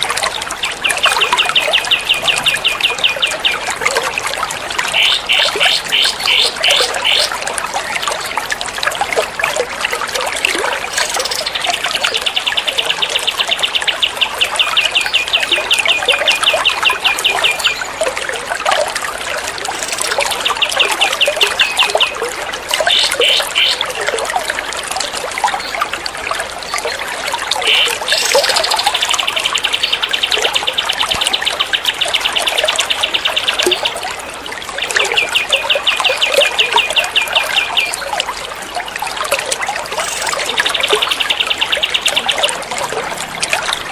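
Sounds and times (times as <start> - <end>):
trickling water: 0.0 - 43.9
songbird trills: 0.6 - 3.6, 40.0 - 42.6.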